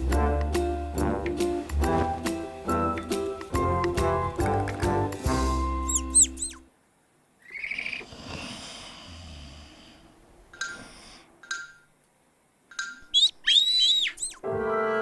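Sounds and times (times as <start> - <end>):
short chirps: 5.7 - 6.6
cartoon breathy snore: 8.0 - 10.1.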